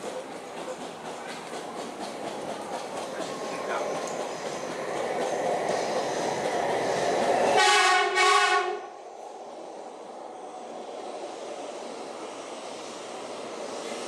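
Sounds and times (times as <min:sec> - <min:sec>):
train rolling along platform: 0:00.0 - 0:14.0
train horn blasts: 0:07.6 - 0:08.9.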